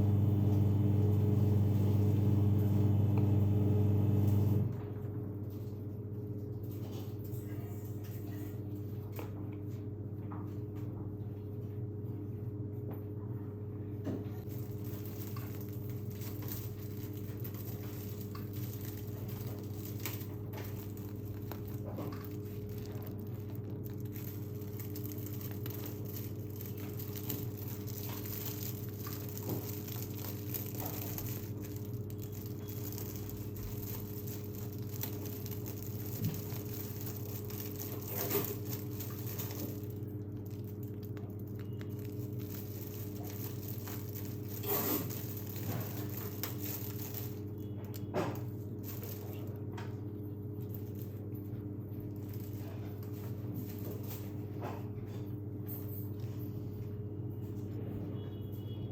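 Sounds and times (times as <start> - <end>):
low electrical hum: 0.0 - 58.9
crinkling and squishing: 14.4 - 58.2.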